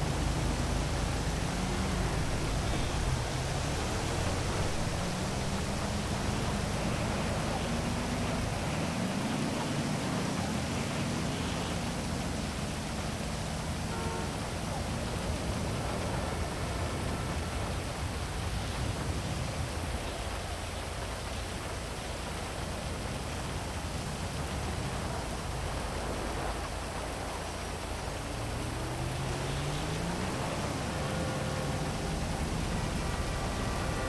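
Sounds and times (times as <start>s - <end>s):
heavy rain falling: 0.0s - 34.0s
low hum rising in pitch: 27.8s - 34.0s.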